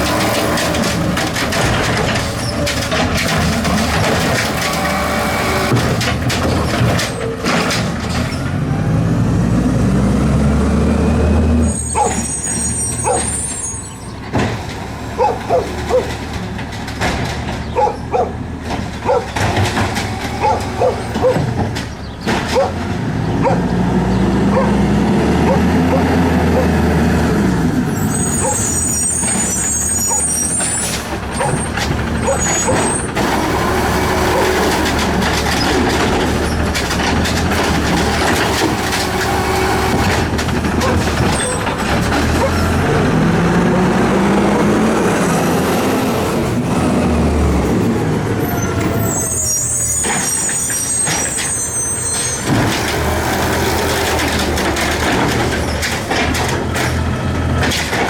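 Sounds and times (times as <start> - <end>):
garbage truck engine running: 0.0 - 58.0.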